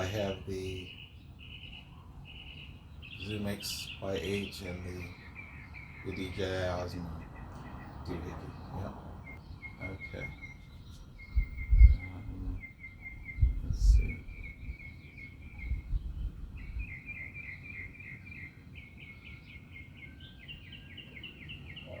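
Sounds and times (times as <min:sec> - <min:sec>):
second bird chirping: 0:00.0 - 0:22.0
songbird chirping: 0:00.0 - 0:22.0
low thumps: 0:11.2 - 0:12.6.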